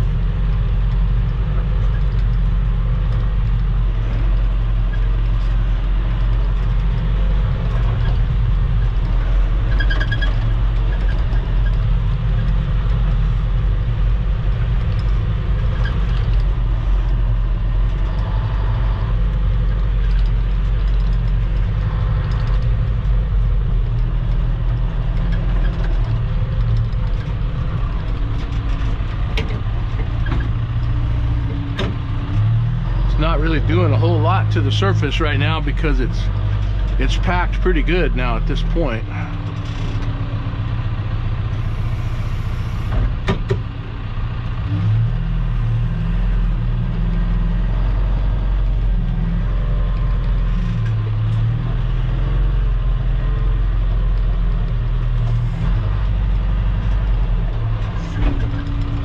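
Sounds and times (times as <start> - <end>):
heavy machine engine under load: 0.0 - 59.0.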